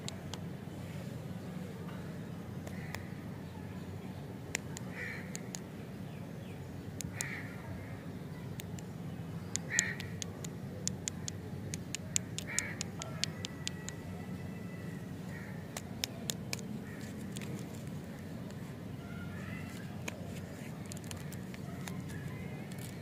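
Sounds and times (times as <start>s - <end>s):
low steady hum: 0.0s - 23.0s
paper wrappers clicking: 15.7s - 18.6s, 19.6s - 23.0s.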